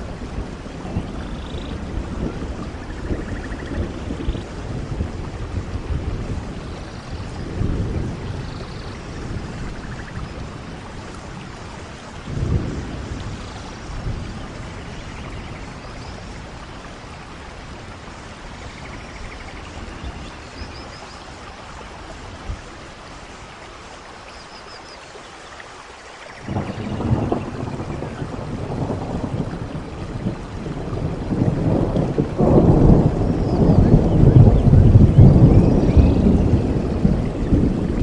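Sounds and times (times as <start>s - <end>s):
thunder rumbles: 0.0s - 23.6s, 26.4s - 38.0s
rain hissing: 0.0s - 38.0s.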